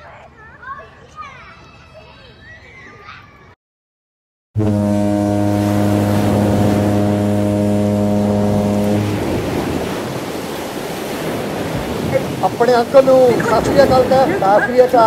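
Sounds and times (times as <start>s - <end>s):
ship's horn deep blast: 4.6s - 10.2s
wind and sea hiss: 5.3s - 15.0s.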